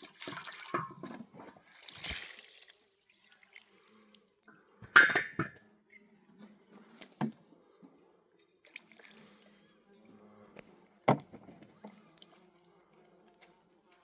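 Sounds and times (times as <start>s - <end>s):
water splashing and dripping: 0.0s - 4.0s.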